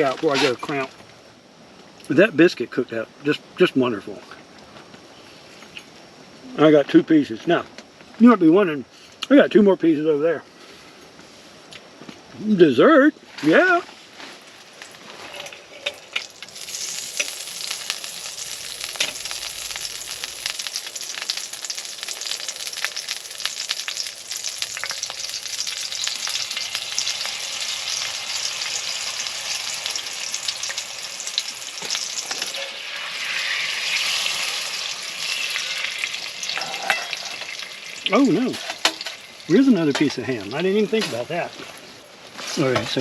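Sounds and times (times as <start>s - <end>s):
food sizzling in butter: 14.5s - 43.0s
dense crackling: 15.8s - 28.9s.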